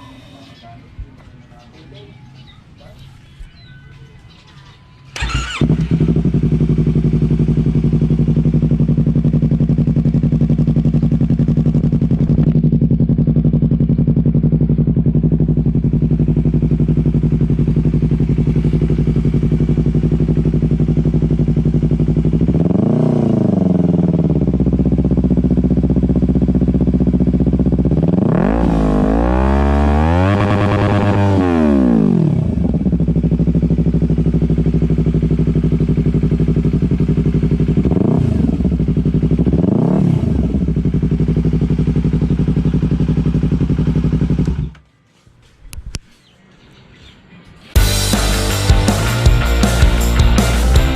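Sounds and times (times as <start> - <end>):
motorcycle engine idling and revving: 0.0 - 45.0, 47.6 - 50.9.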